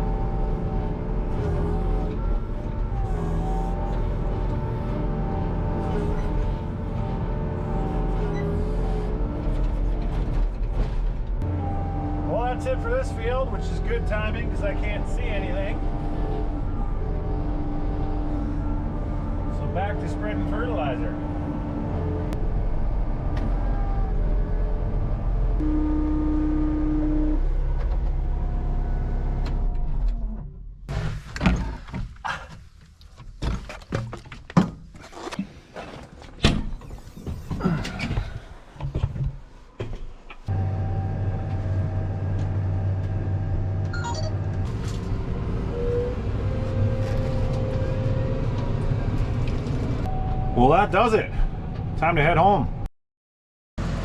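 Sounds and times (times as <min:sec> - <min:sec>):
vehicle engine running: 0:00.0 - 0:29.8, 0:40.5 - 0:50.2
knocks and clunks: 0:08.0 - 0:11.5, 0:29.4 - 0:40.5.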